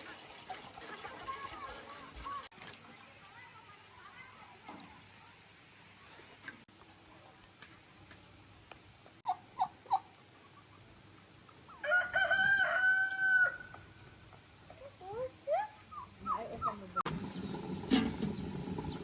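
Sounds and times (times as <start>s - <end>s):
chicken clucks: 0.0s - 2.5s, 9.2s - 13.3s
rooster crowing: 11.8s - 13.8s.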